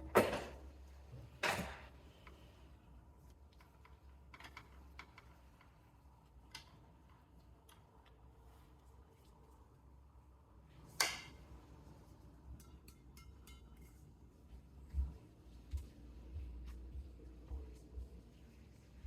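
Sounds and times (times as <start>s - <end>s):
faint clicks and taps: 14.8s - 18.4s.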